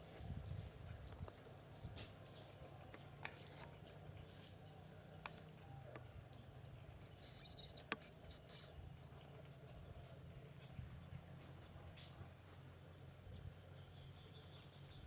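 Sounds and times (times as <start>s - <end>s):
baby monkey squeaking: 7.2s - 8.8s.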